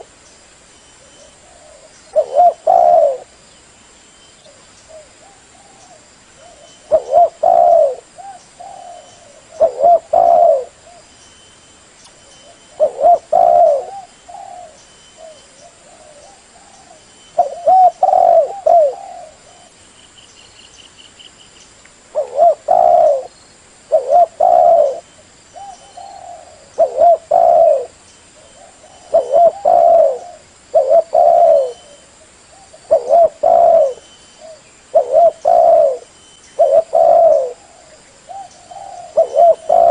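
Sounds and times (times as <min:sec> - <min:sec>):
dove cooing: 0:01.0 - 0:03.4, 0:04.5 - 0:11.1, 0:12.4 - 0:19.8, 0:22.1 - 0:23.3, 0:23.9 - 0:39.9.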